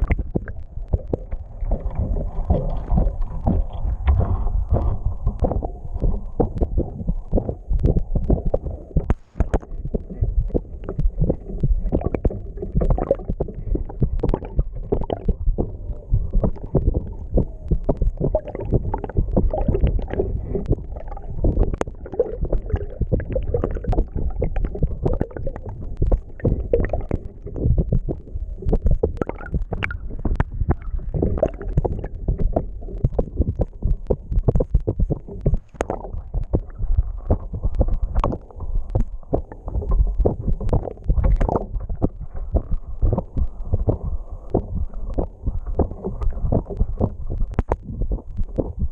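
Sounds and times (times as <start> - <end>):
muffled underwater water rushing: 0.0 - 48.9.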